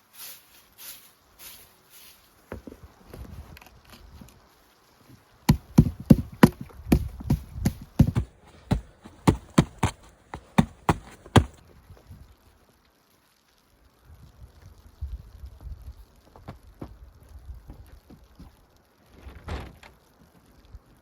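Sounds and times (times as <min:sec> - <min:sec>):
low rustling: 0:05.5 - 0:11.6
sharp knocks: 0:05.5 - 0:11.6.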